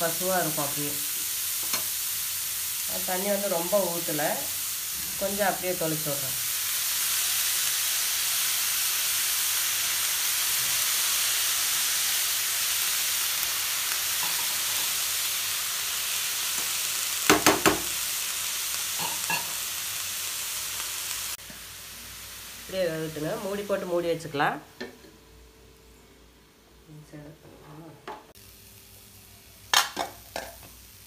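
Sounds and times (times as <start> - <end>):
vegetables sizzling in hot oil: 0.0 - 24.6, 28.3 - 31.0.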